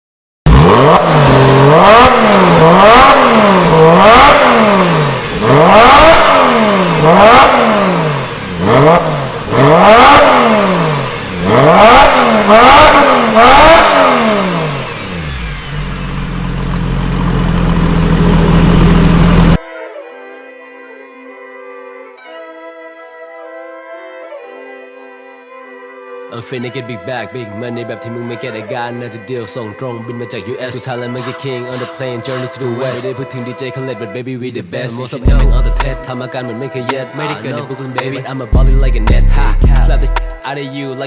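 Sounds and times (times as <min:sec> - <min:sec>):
car engine revving: 0:00.5 - 0:19.6, 0:30.8 - 0:33.2, 0:35.2 - 0:41.0
car engine idling: 0:10.6 - 0:19.6, 0:35.3 - 0:41.0.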